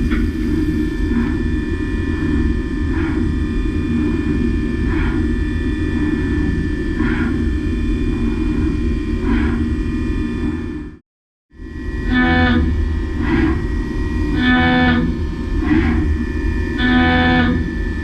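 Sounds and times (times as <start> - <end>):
high spindle whine: 11.6 - 18.0.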